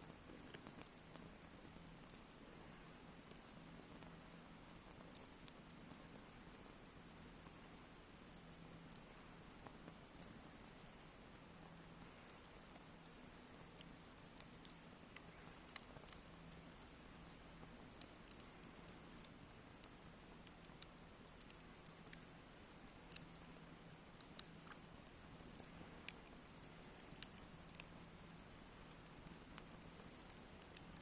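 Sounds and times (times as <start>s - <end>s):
campfire crackling: 0.0s - 31.0s
faint steady hiss: 0.0s - 31.0s.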